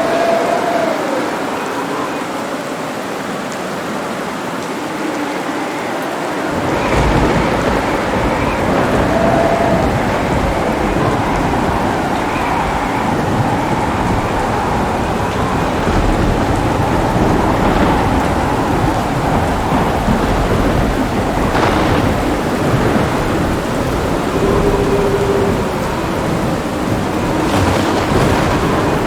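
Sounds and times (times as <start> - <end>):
heavy rain: 0.0 - 29.0
thunder rumbling: 4.8 - 29.0
thunder crackle: 6.5 - 29.0.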